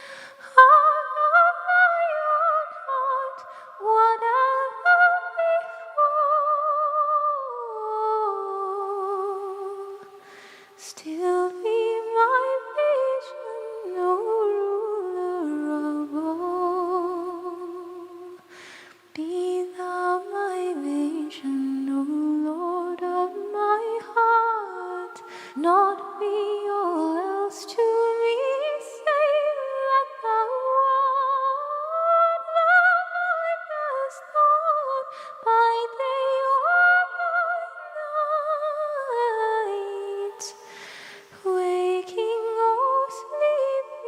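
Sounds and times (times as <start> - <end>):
breath-like noise: 0.0 - 0.5, 10.2 - 10.8, 18.4 - 19.1, 25.2 - 25.6, 40.6 - 41.4
a cappella voices singing in harmony: 0.0 - 44.0.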